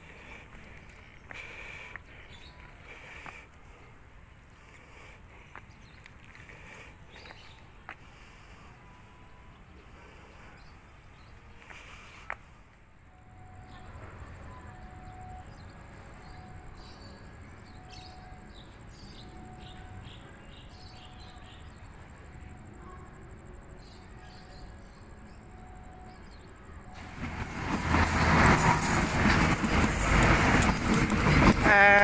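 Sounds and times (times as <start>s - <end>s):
train rushing rumble: 26.5s - 32.0s.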